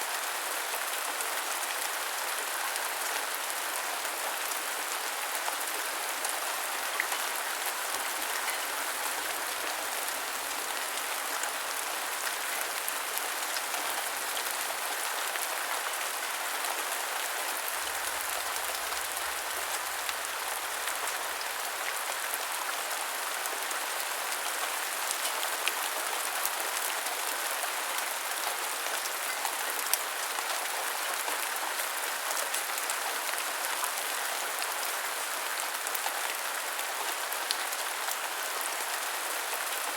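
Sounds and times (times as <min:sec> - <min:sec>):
heavy rain on surfaces: 0:00.0 - 0:39.9.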